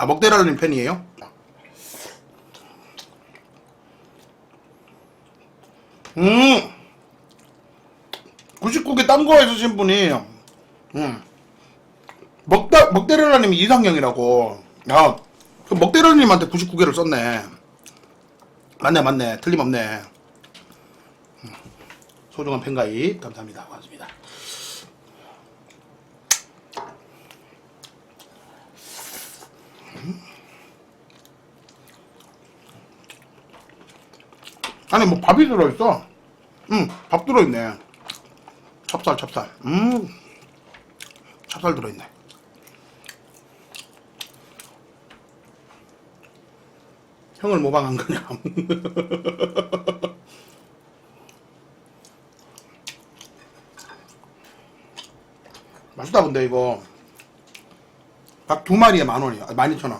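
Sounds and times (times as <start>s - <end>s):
soft chewing: 1.2s - 6.2s, 6.8s - 8.7s, 10.3s - 12.5s, 17.6s - 18.8s, 19.4s - 22.4s, 24.9s - 35.0s, 36.1s - 47.4s, 50.3s - 56.1s, 56.8s - 58.5s
wet mouth clicks and smacks: 26.3s - 26.6s
chewing chicken: 30.6s - 34.9s, 37.8s - 39.3s, 39.9s - 46.9s, 50.4s - 56.0s.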